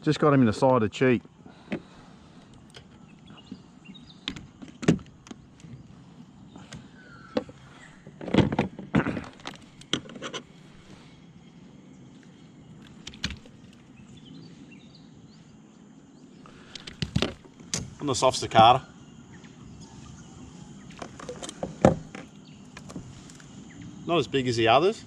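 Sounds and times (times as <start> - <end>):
fishing gear clattering on kayak: 6.7 - 10.5, 16.7 - 17.8.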